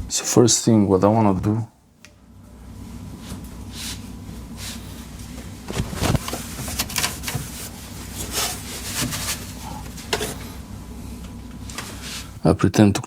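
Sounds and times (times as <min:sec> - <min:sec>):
air conditioner hum: 0:00.0 - 0:13.0
rubbing swishes and light knocks: 0:05.8 - 0:09.6.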